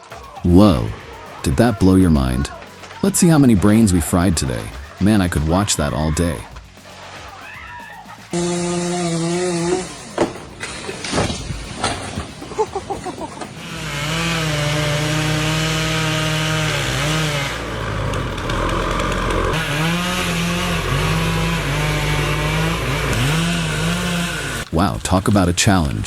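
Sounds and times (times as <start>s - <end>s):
chainsaw cutting wood: 8.3s - 24.7s.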